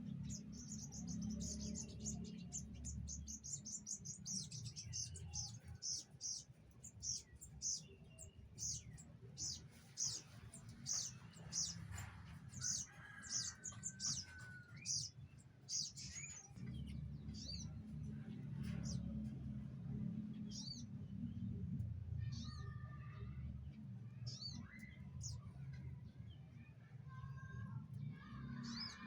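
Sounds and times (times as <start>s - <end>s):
small birds chirping: 0.0s - 21.5s.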